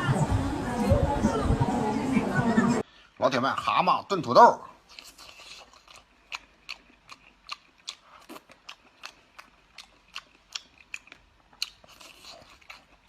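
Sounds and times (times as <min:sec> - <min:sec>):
person chewing food: 0:04.8 - 0:13.0.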